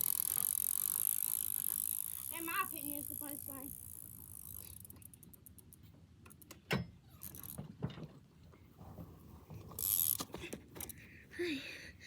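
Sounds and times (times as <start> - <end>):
bike chain and freewheel rattling: 0.0 - 5.8, 7.2 - 7.6, 9.8 - 10.2.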